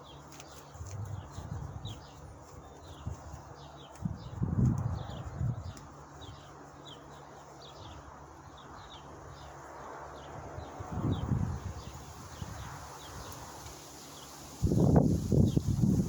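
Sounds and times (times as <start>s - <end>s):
small bird chirping: 0.0s - 9.6s.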